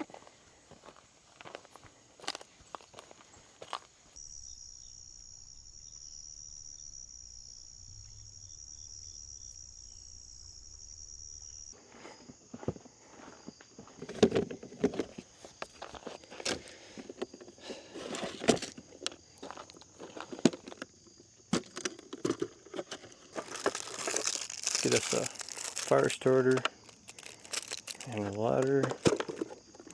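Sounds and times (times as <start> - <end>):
footsteps: 0.0 - 4.2
insect chorus: 0.0 - 29.9.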